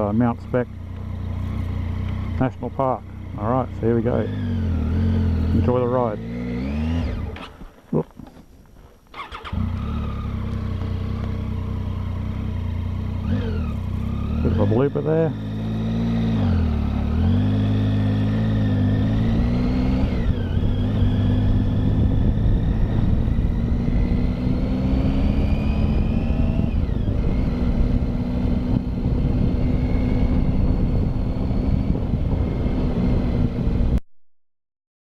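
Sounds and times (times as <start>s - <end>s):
motorcycle engine cruising: 0.0s - 34.0s
wind rush: 26.0s - 34.0s.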